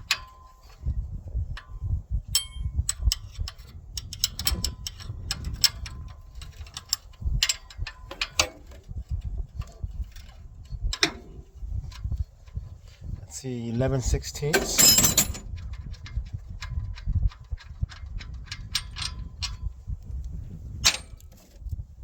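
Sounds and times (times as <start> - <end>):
ratchet wrench clicking: 2.3 - 8.4
metal tools clinking: 2.3 - 8.7, 14.4 - 15.6.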